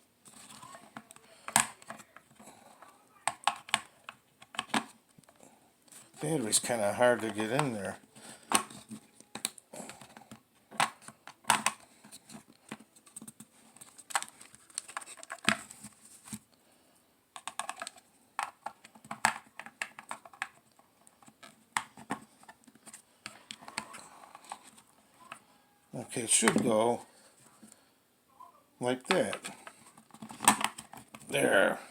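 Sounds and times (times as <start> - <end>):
plastic clicks and scrapes: 0.2 - 6.2, 8.4 - 16.4, 17.4 - 25.5, 29.1 - 31.3.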